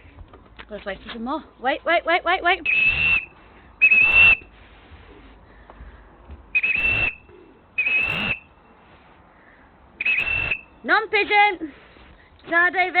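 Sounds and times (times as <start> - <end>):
hand whistle blasts: 2.7 - 4.5, 6.6 - 7.2, 7.8 - 8.5, 10.0 - 10.8.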